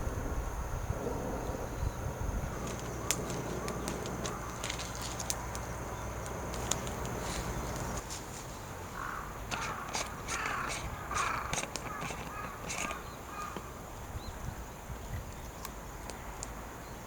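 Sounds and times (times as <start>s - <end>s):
wood fire crackling: 0.9s - 14.1s
crow cawing: 2.6s - 5.6s, 8.9s - 13.8s.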